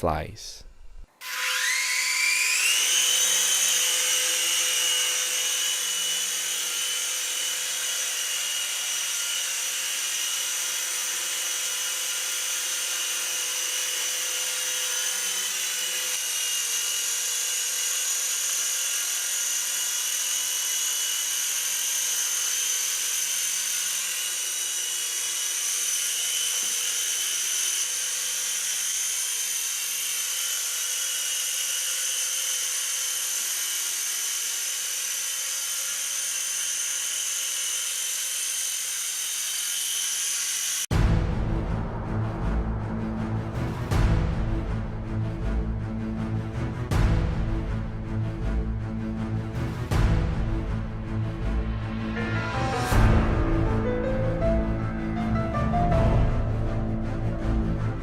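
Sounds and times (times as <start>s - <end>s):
toy helicopter motor whine: 1.1s - 40.9s.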